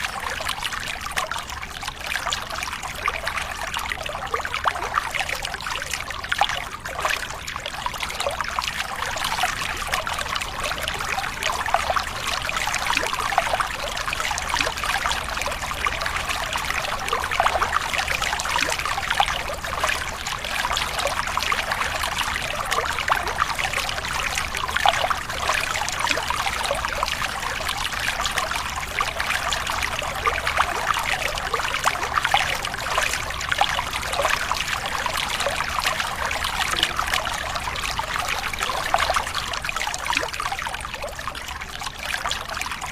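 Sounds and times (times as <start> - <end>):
water trickling and splashing: 0.0 - 42.9.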